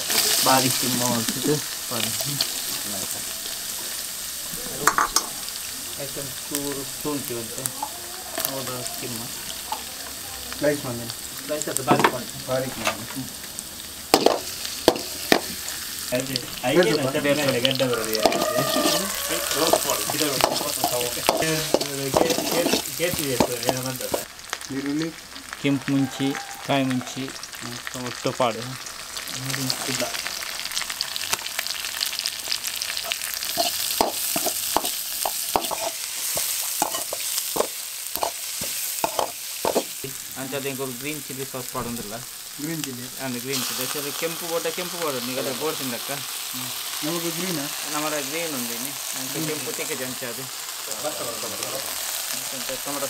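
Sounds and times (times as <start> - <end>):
food sizzling in hot oil: 0.0 - 53.0
metal spoon clanking on pan: 4.8 - 5.4, 18.2 - 19.0, 19.6 - 24.2, 33.0 - 39.9.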